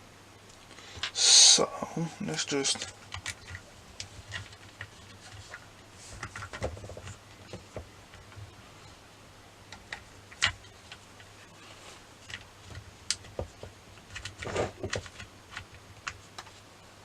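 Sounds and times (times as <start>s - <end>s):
faint steady hum: 0.0s - 17.0s
plastic parts clicking and tapping: 2.7s - 8.6s, 9.7s - 11.3s, 12.2s - 16.6s.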